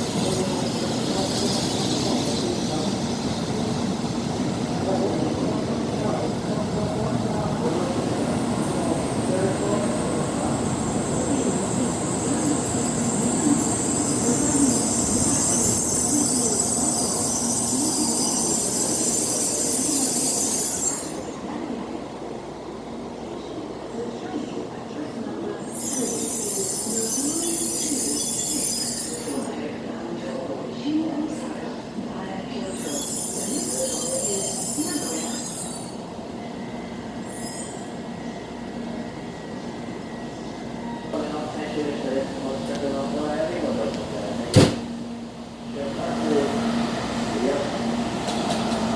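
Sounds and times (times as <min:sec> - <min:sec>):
high squealing brake hiss: 0:00.0 - 0:03.5, 0:11.2 - 0:21.4, 0:25.6 - 0:29.6, 0:32.6 - 0:38.6
train braking: 0:00.0 - 0:22.4, 0:25.4 - 0:30.5, 0:32.0 - 0:45.3
brake squeal: 0:25.7 - 0:29.5, 0:32.7 - 0:38.4.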